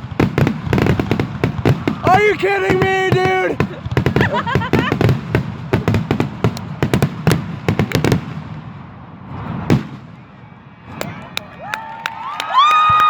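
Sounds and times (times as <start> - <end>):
fireworks bangs: 0.0 - 13.0
faint firework pops: 5.8 - 8.2.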